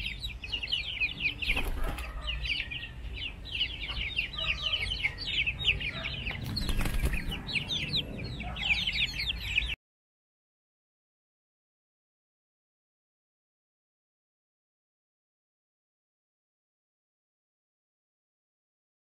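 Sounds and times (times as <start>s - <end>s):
chickens chirping: 0.0s - 9.8s
wings flapping: 1.4s - 2.2s, 6.4s - 7.6s.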